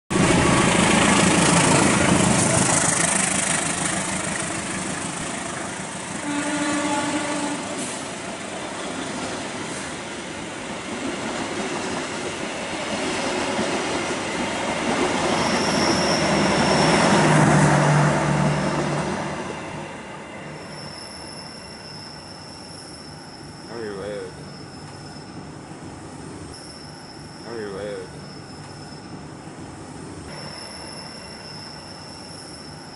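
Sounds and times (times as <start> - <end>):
carriages rolling on rails: 0.1 - 19.6
diesel locomotive engine: 0.1 - 32.9
thin high squeal: 15.4 - 17.3, 20.4 - 25.4, 26.5 - 29.2, 30.3 - 32.9
brief pitched tone: 30.3 - 32.9.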